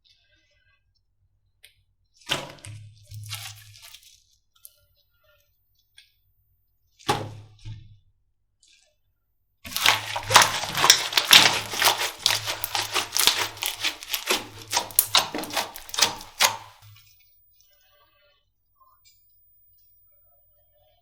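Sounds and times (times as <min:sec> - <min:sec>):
slime crackling and popping: 0:09.7 - 0:16.8.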